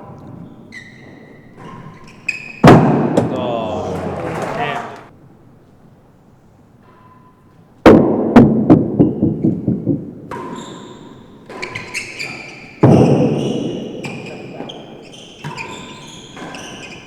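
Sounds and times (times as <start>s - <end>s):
ball knocking off racquets and walls: 1.0s - 5.1s
ball bouncing: 2.6s - 5.1s.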